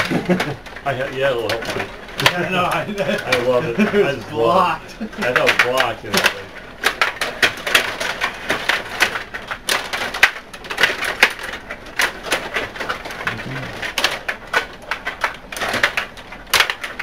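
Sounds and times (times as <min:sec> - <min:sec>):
table hockey clacking: 0:01.4 - 0:13.2.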